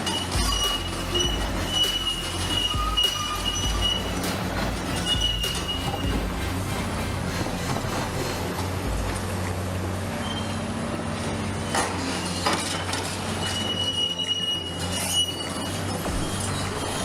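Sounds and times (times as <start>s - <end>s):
high steel squeal: 0.0s - 8.8s, 10.0s - 17.0s
metal clanks and knocks: 0.0s - 9.5s
excavator engine hum: 0.0s - 17.0s.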